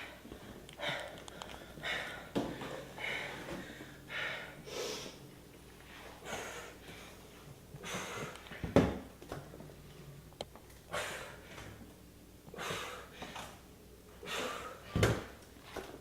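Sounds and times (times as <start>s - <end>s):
person breathing hard: 0.0s - 5.2s, 5.9s - 8.6s, 12.5s - 13.6s, 14.2s - 15.0s.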